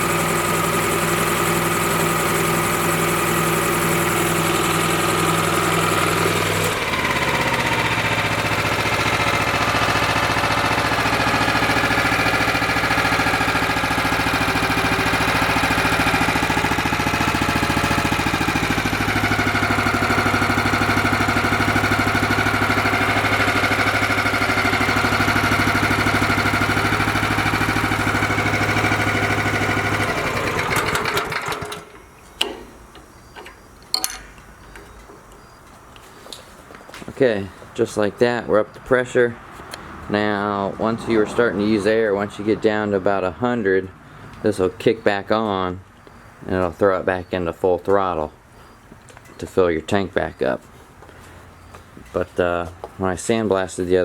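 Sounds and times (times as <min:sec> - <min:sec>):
engine driving air compressor: 0:00.0 - 0:37.8.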